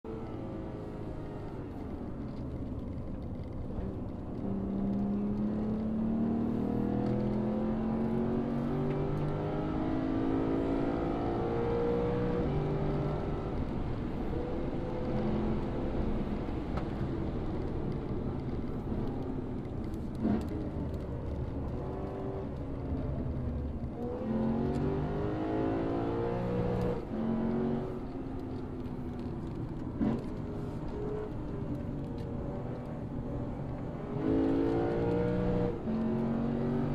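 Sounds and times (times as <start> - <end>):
car engine accelerating: 0.1 - 36.9.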